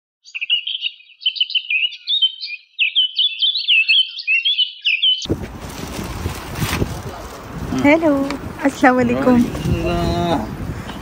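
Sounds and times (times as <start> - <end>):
small birds chirping: 0.2 - 5.4, 7.8 - 11.0.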